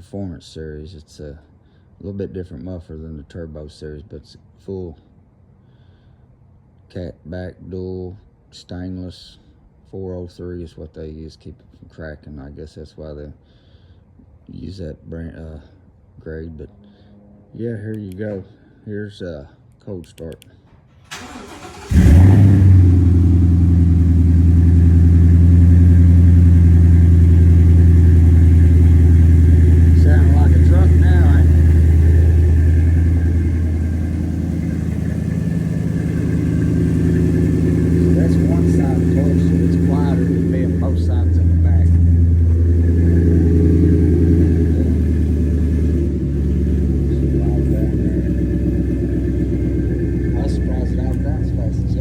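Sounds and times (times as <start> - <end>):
engine cold starting and idling: 20.7 - 52.0.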